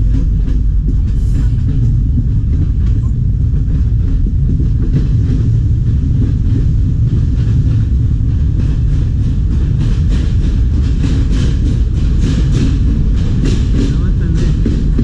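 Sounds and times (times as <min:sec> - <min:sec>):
train rumbling on track: 0:00.0 - 0:15.0
train wheel clacks: 0:00.0 - 0:15.0.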